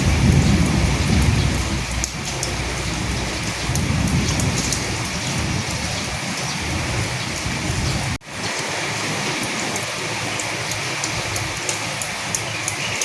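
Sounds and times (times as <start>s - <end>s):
low rumble: 0.0s - 8.2s
heavy rain falling: 0.0s - 13.0s.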